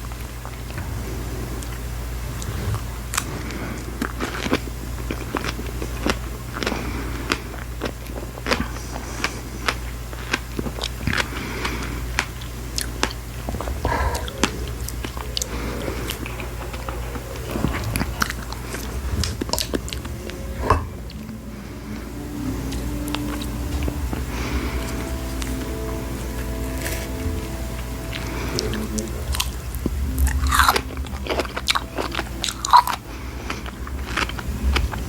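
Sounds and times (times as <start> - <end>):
chewing strawberries: 0.0 - 35.0
low hum: 0.0 - 35.0
mouth clicks: 7.2 - 21.4
faint sustained musical tones: 12.0 - 35.0.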